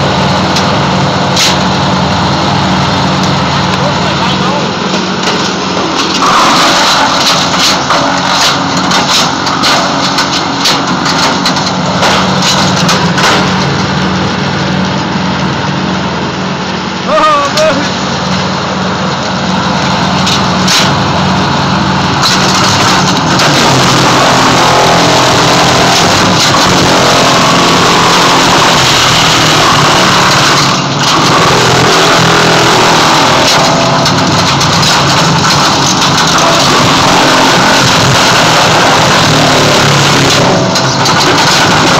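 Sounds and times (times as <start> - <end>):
wood chipper engine running: 0.0 - 41.9
wood cracking and snapping: 22.1 - 41.9.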